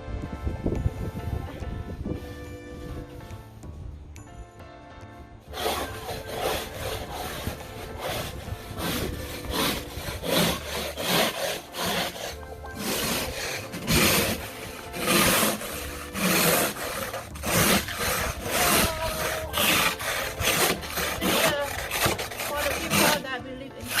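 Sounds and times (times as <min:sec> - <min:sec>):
snow scraped off a car: 0:05.5 - 0:24.0.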